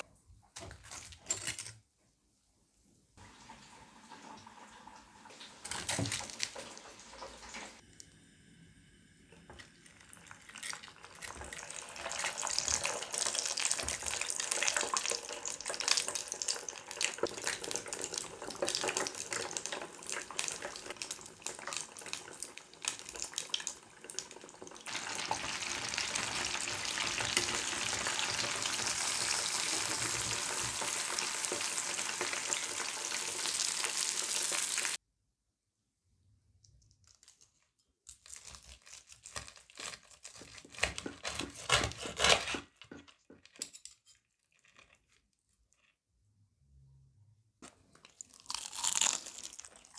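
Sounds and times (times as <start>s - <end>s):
chicken deep-frying in oil: 3.2s - 7.8s, 9.7s - 35.0s.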